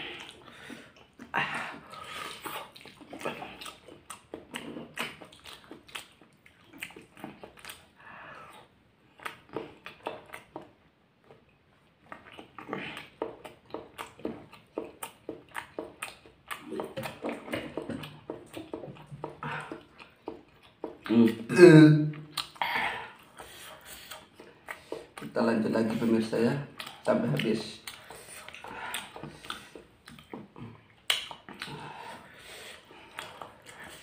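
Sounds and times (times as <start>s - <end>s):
huffing breaths through pursed lips: 0.0s - 3.8s, 19.2s - 20.0s, 22.6s - 25.2s, 27.9s - 34.0s
wet chewing and lip smacks: 0.0s - 21.5s, 22.1s - 34.0s.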